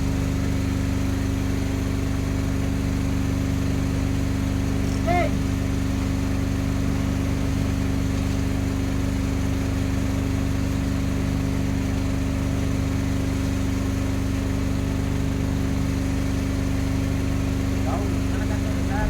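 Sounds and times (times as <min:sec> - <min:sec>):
boat engine droning: 0:02.8 - 0:10.5, 0:13.2 - 0:19.0.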